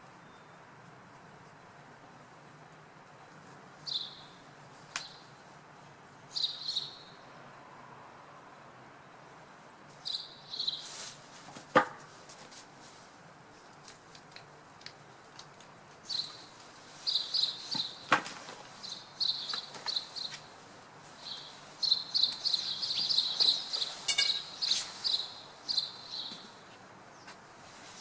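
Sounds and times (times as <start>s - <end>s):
small birds chirping: 3.8s - 5.4s, 6.3s - 7.3s, 10.0s - 10.9s, 16.0s - 18.1s, 18.7s - 27.4s.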